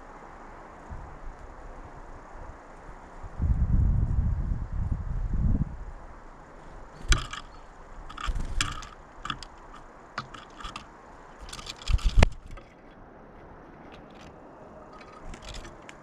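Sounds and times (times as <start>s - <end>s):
wind rumble on microphone: 0.0s - 10.8s
birds pecking on feeder: 6.5s - 16.0s.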